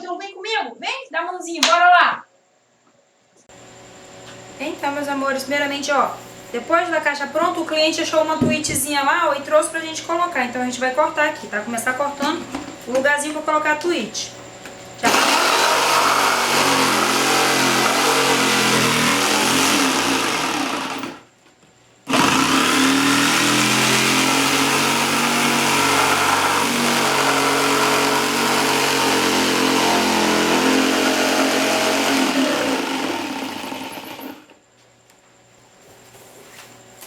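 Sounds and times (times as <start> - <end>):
power tool cutting: 15.0 - 21.3, 22.1 - 34.6.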